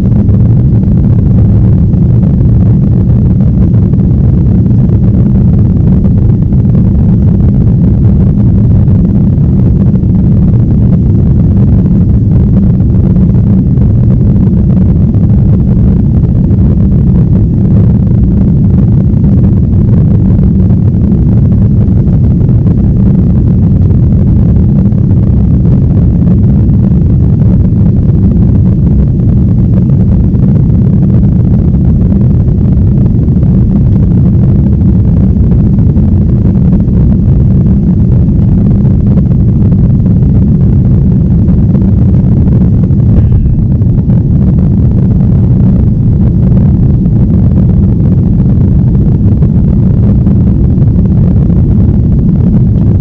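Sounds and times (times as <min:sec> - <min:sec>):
jet airliner cabin drone: 0:00.0 - 0:53.0.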